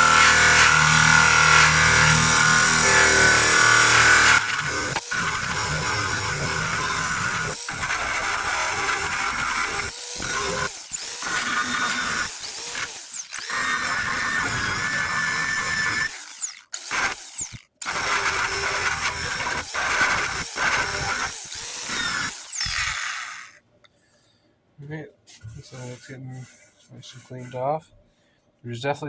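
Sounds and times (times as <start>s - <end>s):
wire wheel grinding metal: 0.0s - 23.6s.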